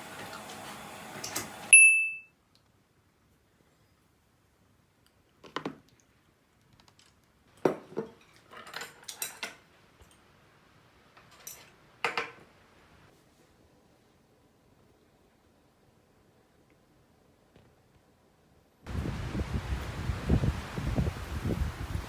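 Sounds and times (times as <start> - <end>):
tableware clinking: 1.7 - 2.2.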